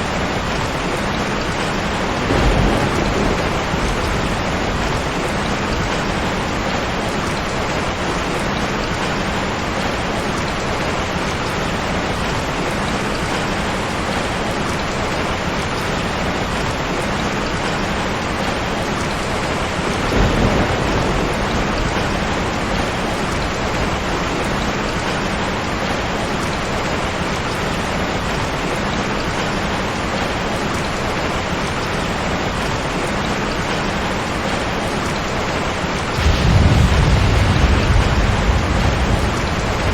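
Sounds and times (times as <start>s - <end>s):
heavy rain: 0.0s - 39.9s
low rumble: 36.2s - 39.9s.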